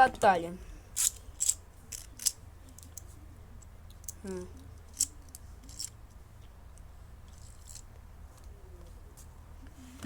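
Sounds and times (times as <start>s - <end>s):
plastic spinning tops clacking: 1.0s - 3.0s.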